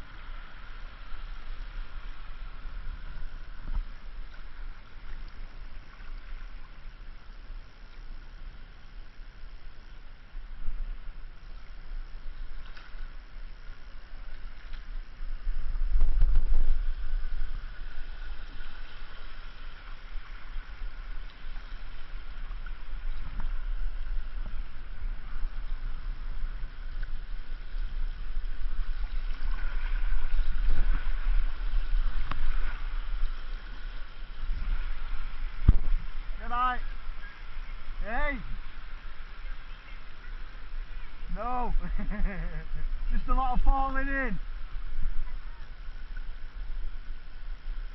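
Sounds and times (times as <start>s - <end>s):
river water rushing and gurgling: 0.0s - 47.9s
water splashes: 0.0s - 47.9s
wind buffeting microphone: 14.2s - 43.7s.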